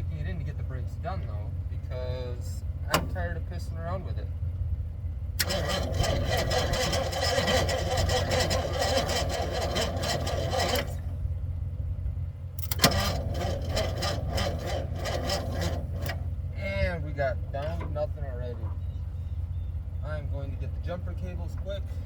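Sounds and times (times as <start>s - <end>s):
starter cranking engine: 2.8s - 3.4s, 5.4s - 11.4s, 12.6s - 18.8s.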